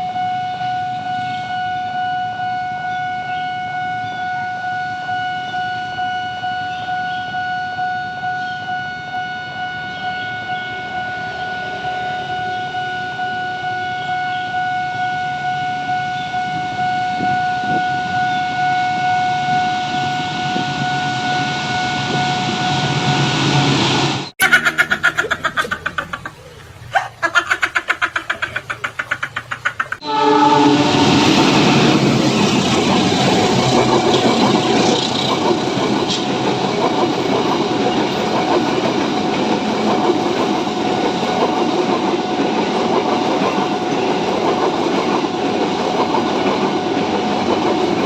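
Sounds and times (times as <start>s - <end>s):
train horn: 0.0s - 23.7s, 30.0s - 35.4s
pulsing train rumble: 0.0s - 48.0s.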